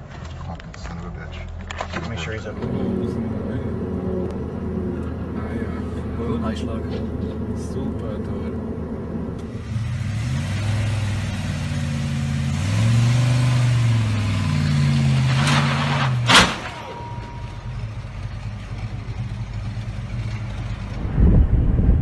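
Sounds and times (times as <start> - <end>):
car engine revving: 2.3 - 22.0
sharp bang: 15.2 - 17.8.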